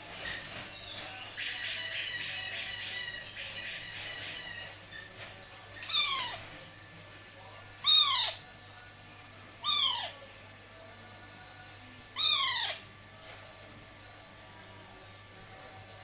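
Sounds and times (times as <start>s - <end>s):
baby parakeet calling: 5.9s - 6.4s, 7.8s - 8.4s, 9.6s - 10.2s, 12.2s - 12.8s.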